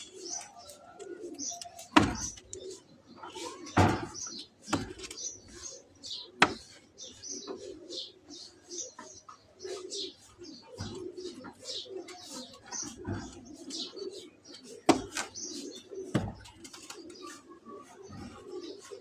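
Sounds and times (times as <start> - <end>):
pigeons cooing: 0.0 - 19.0
sharp knocks: 2.0 - 2.4.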